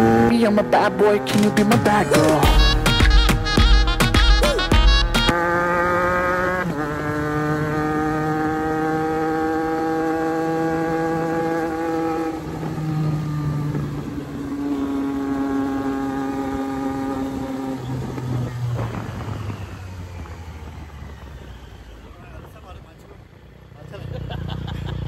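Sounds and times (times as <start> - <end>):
motorcycle engine cruising: 0.0 - 25.0
wind buffeting microphone: 15.9 - 23.3.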